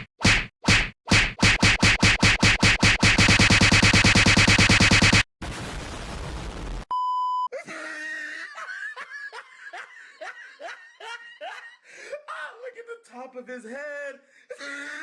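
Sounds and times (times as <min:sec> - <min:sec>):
censor bleep: 0:06.9 - 0:07.5.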